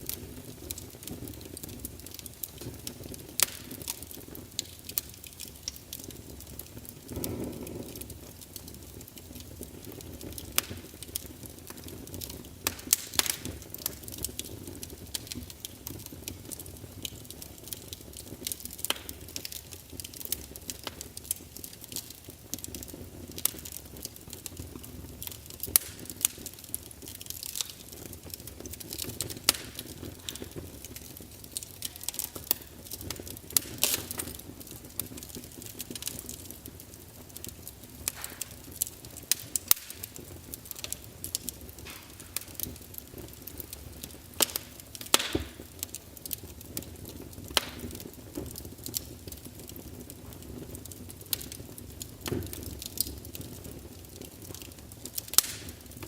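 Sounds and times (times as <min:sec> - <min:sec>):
rush of flame: 0:00.0 - 0:24.4, 0:25.2 - 0:36.6
logs crackling and popping: 0:00.0 - 0:56.0.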